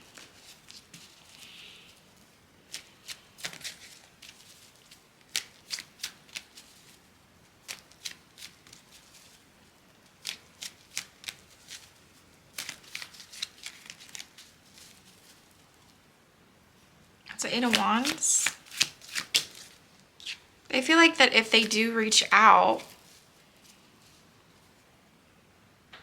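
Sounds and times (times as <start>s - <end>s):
cards being shuffled: 2.7s - 7.0s, 7.6s - 9.4s, 10.1s - 15.4s, 17.4s - 20.4s.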